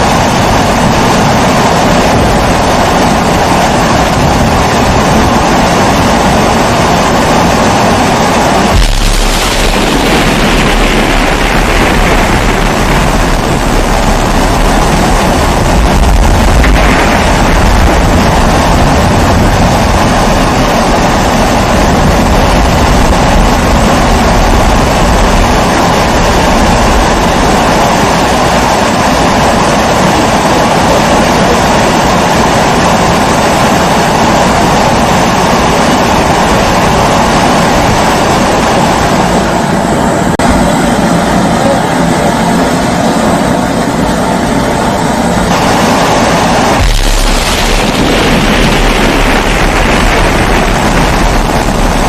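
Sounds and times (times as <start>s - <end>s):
low rumble: 0.3s - 29.6s, 45.4s - 52.0s.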